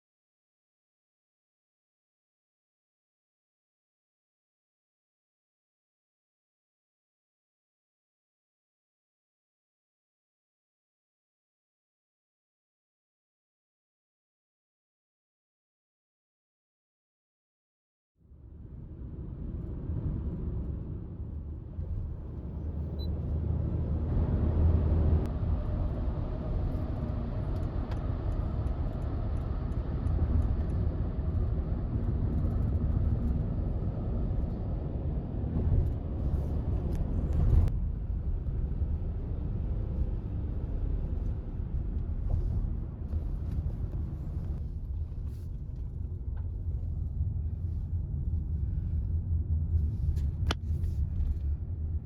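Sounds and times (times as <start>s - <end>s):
low rumble: 18.3s - 52.0s.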